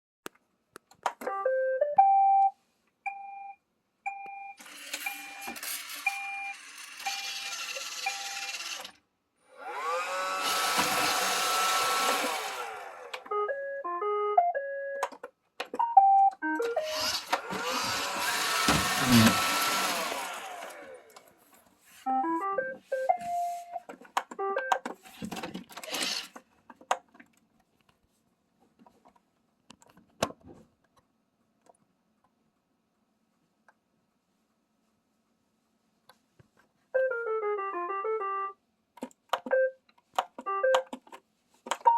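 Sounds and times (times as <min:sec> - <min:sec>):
robot vacuum beeps and tunes: 0:04.1 - 0:08.8, 0:15.8 - 0:20.7, 0:22.1 - 0:23.8
vacuum motor whine and rushing: 0:09.6 - 0:13.2, 0:16.9 - 0:21.2.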